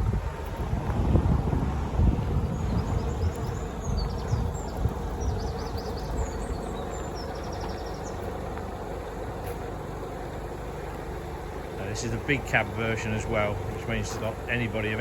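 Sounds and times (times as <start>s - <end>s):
faint steady hum: 0.0s - 15.0s
wind rumbling on microphone: 0.0s - 15.0s
high chirping: 2.4s - 8.5s.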